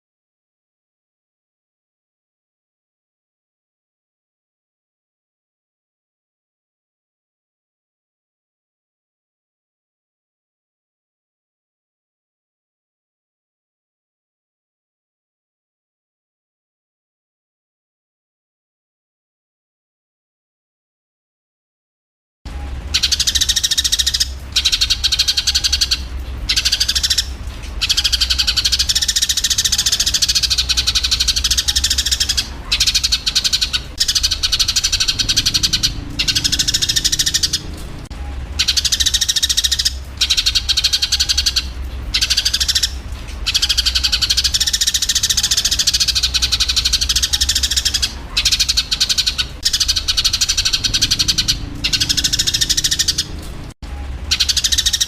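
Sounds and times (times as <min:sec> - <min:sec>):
steady low hum: 0:22.5 - 0:54.7
sparrows chattering harshly: 0:22.9 - 0:53.5, 0:54.3 - 0:55.0.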